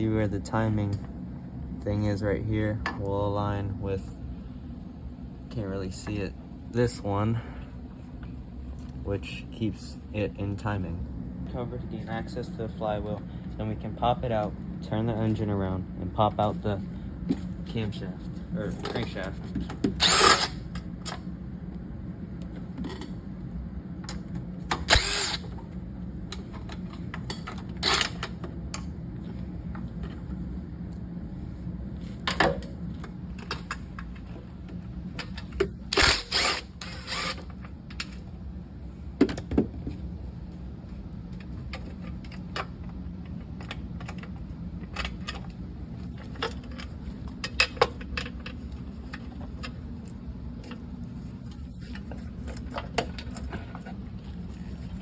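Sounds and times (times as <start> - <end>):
bursts of tool noise: 20.0 - 20.6, 24.7 - 25.5, 35.9 - 37.5.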